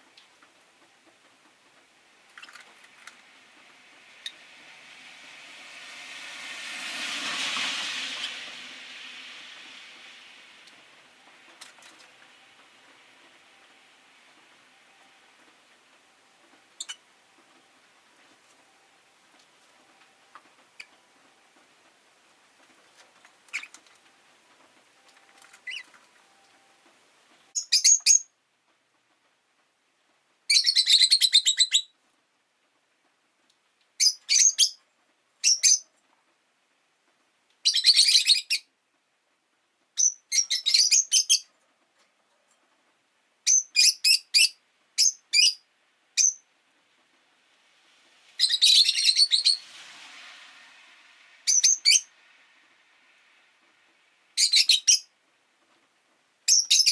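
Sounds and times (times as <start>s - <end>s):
faint rushing noise: 0.0s - 27.6s, 44.6s - 56.5s
lovebirds chirping: 23.4s - 23.9s, 25.5s - 26.1s, 27.5s - 28.3s, 51.5s - 52.1s, 56.5s - 56.9s.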